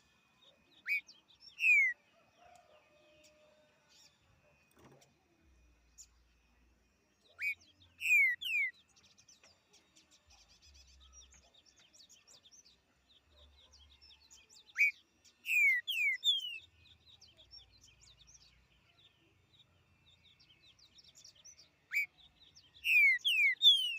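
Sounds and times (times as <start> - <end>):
small birds chirping: 0.0 - 23.9
bird singing whistled phrase: 0.8 - 2.0, 7.4 - 8.7, 22.8 - 23.9.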